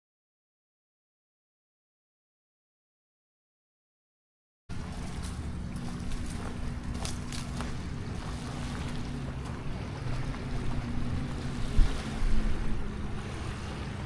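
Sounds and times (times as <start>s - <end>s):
low steady drone: 4.7s - 14.0s
small waves washing on beach: 4.7s - 14.0s
wind noise on microphone: 5.7s - 14.0s.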